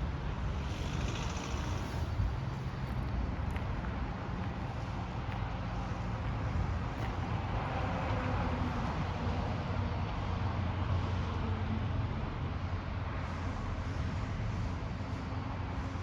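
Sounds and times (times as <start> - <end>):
low engine rumble: 0.0 - 8.1.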